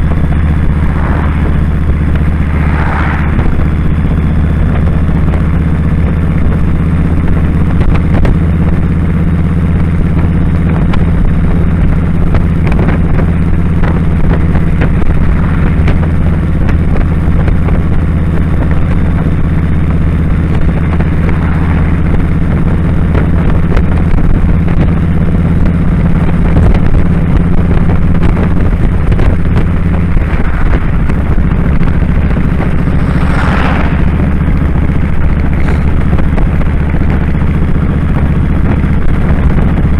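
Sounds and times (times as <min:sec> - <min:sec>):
whoosh: 0:00.0 - 0:05.2, 0:28.9 - 0:36.6
motorcycle engine running: 0:00.0 - 0:39.9.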